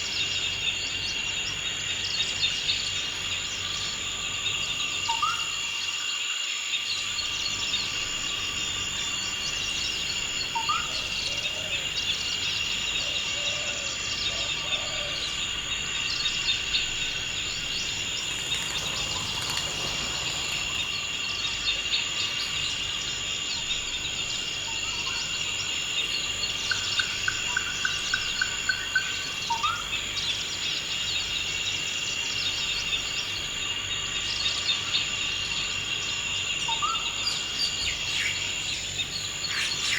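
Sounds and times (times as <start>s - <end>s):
insect chorus: 0.0s - 39.9s
bird calls: 7.0s - 22.8s.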